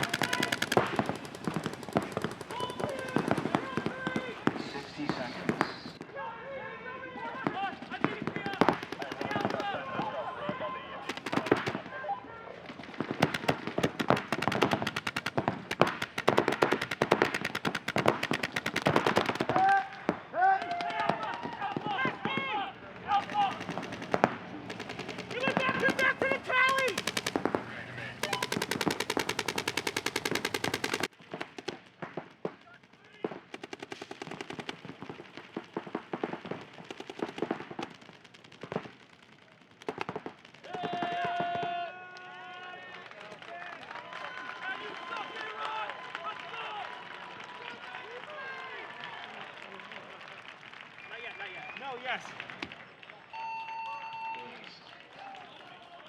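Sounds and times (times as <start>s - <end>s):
paintball markers firing: 0.0s - 6.1s, 7.3s - 12.0s, 12.6s - 42.2s.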